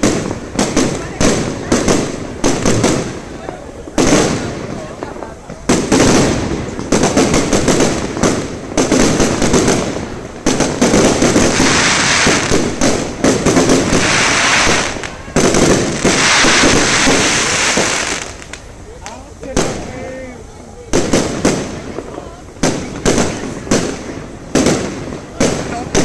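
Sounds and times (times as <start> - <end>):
fireworks bangs: 0.0 - 26.0
fireworks crackling: 0.0 - 26.0.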